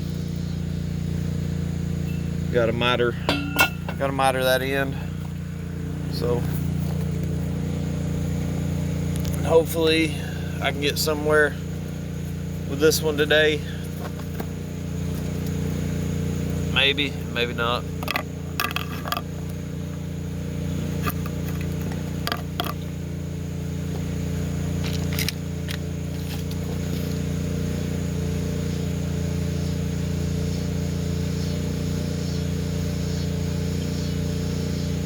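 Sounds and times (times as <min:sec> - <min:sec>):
engine humming: 0:00.0 - 0:35.0
handling clicks and knocks: 0:03.2 - 0:04.2, 0:17.9 - 0:19.6, 0:21.0 - 0:22.9.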